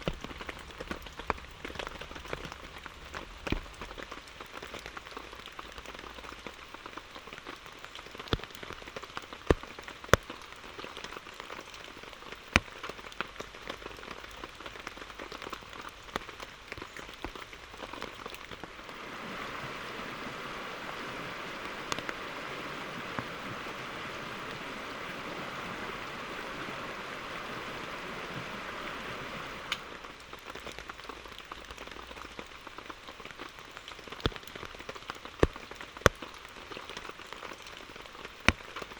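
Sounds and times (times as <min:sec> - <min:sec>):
loud raindrops striking close: 0:00.0 - 0:38.9
rain falling: 0:00.0 - 0:38.9
loud steady hiss: 0:18.7 - 0:30.1.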